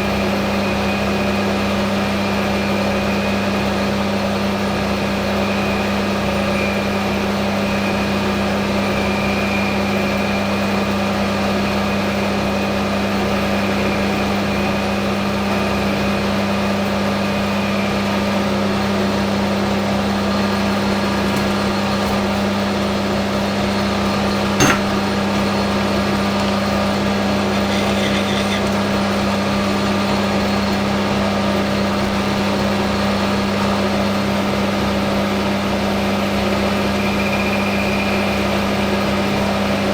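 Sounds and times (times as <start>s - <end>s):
metal lathe motor hum: 6.6s - 37.3s.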